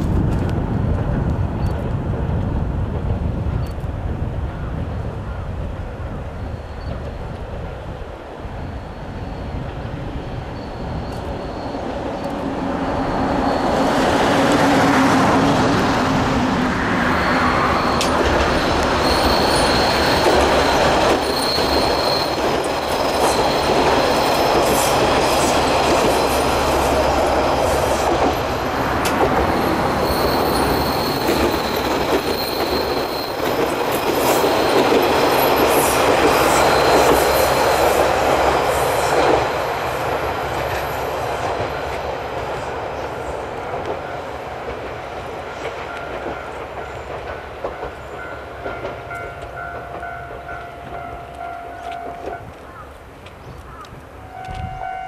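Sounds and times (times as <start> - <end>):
diesel railcar running: 0.0 - 55.0
high wheel squeal: 8.6 - 15.0, 16.9 - 27.2, 28.9 - 38.0.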